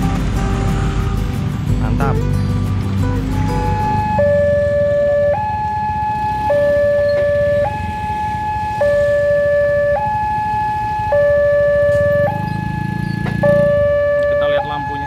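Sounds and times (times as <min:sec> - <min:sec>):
level crossing alarm two-tone warning: 0:03.5 - 0:15.0.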